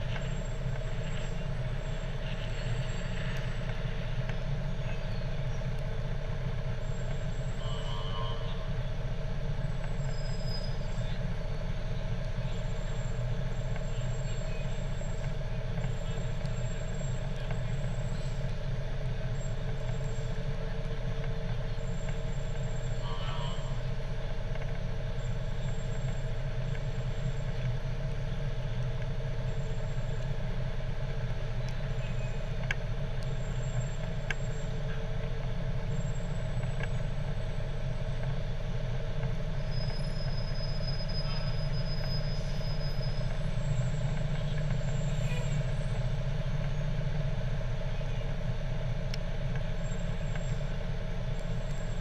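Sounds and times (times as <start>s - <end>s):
truck engine droning: 0.0s - 52.0s
faint clicks: 31.1s - 46.0s, 48.3s - 50.6s.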